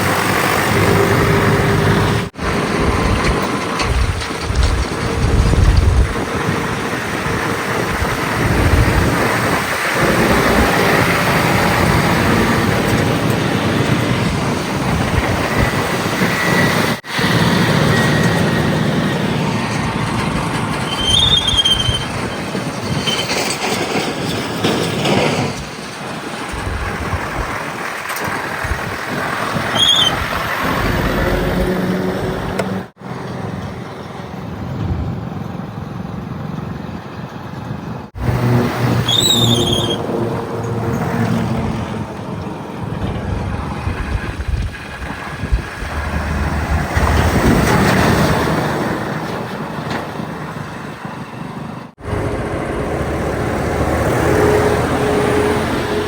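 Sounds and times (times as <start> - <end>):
heavy machinery diesel engines: 0.0 - 56.0
high squeals: 14.9 - 23.6, 29.4 - 33.0, 38.2 - 41.0.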